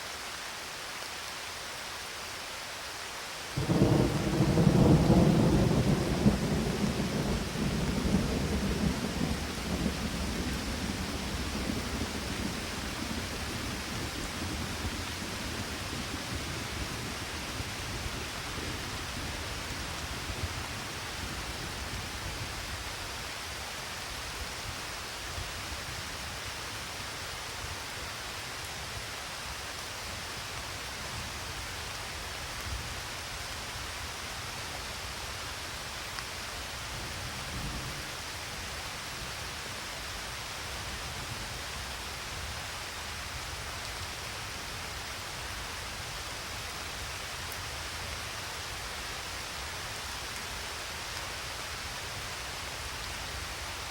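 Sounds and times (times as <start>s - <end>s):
steady rain: 0.0s - 53.9s
thunder rumbling: 3.6s - 20.9s.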